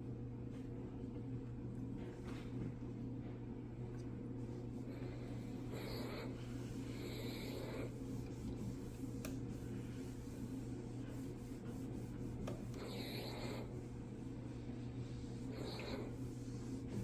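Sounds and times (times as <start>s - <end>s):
steady low hum: 0.0s - 17.0s
soft rubbing strokes: 4.3s - 17.0s.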